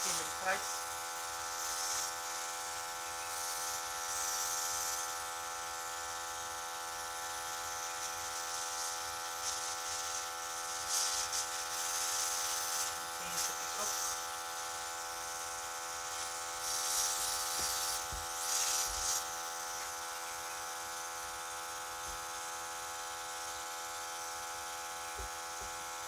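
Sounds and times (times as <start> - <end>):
airbrush spraying hiss: 0.0 - 5.2, 7.7 - 20.6
compressor electric hum: 0.0 - 26.0.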